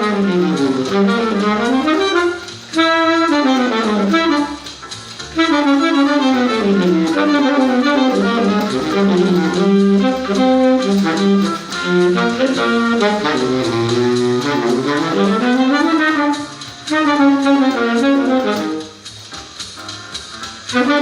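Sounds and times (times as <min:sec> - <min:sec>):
baritone saxophone jazz solo: 0:00.0 - 0:21.0.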